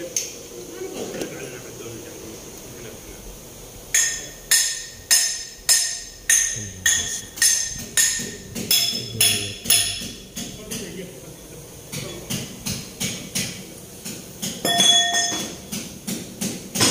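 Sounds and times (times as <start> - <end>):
hammer striking metal: 3.9 - 10.8.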